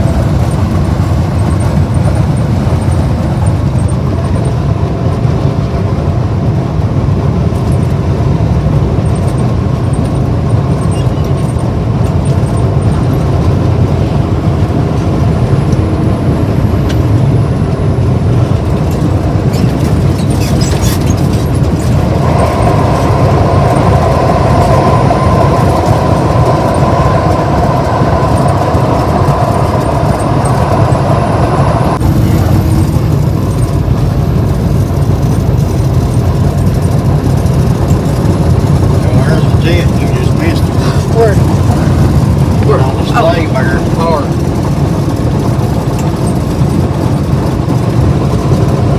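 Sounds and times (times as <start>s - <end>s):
car road and engine rumble: 0.0s - 48.9s
higher steady hum: 21.2s - 47.5s.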